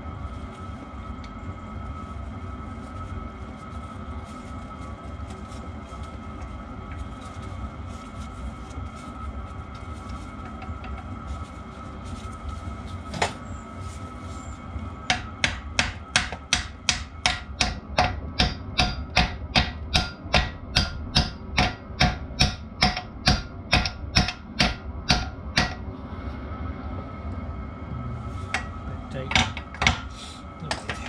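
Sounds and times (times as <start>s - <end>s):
hammer striking metal: 15.1s - 25.8s.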